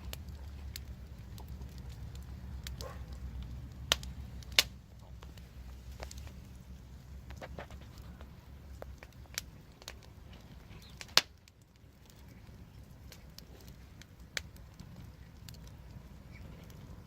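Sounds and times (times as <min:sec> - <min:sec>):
low steady rumble: 0:00.0 - 0:17.0
wood fire crackling: 0:00.0 - 0:17.0.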